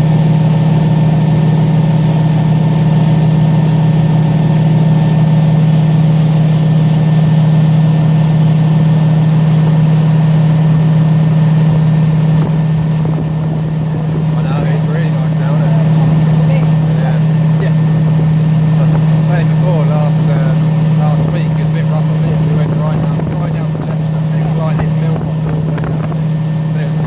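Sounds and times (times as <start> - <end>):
boat engine droning: 0.0 - 27.0.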